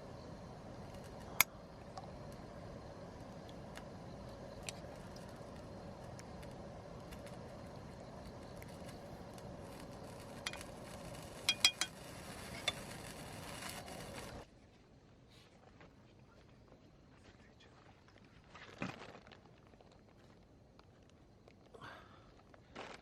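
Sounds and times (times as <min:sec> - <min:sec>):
small ticks: 0:00.0 - 0:14.4
steady low hiss: 0:00.0 - 0:14.7.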